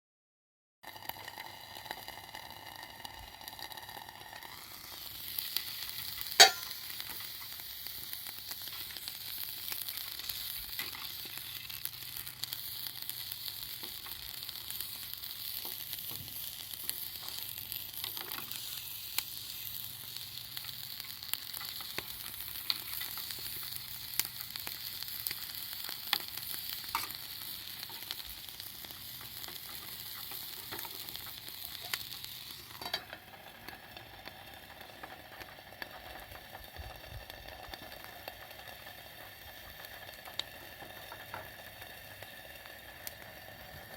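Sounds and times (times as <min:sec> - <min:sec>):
campfire crackling: 0:00.9 - 0:43.9
steady hiss: 0:01.0 - 0:43.9
sharp pops of fire: 0:03.1 - 0:33.8.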